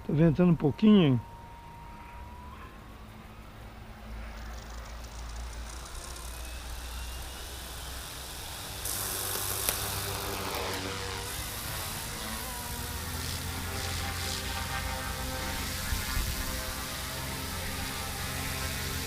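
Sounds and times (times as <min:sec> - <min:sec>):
rc helicopter motor whine: 0:00.8 - 0:19.0
wind noise on microphone: 0:15.5 - 0:16.9.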